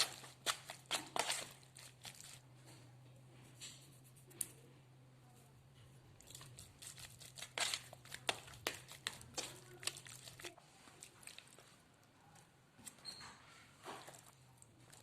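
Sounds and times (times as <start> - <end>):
food crinkling and crunching: 0.0 - 2.9, 6.1 - 15.0.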